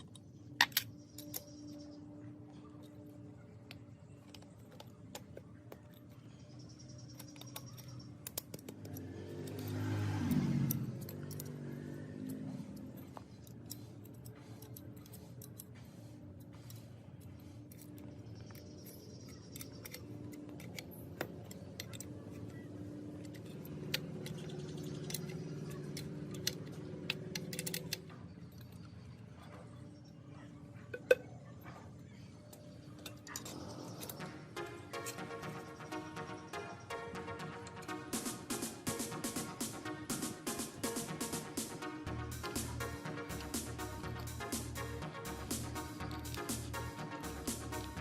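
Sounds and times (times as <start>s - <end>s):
small metal parts clinking: 0.0s - 30.2s, 31.9s - 39.0s
steady hum: 32.1s - 48.0s.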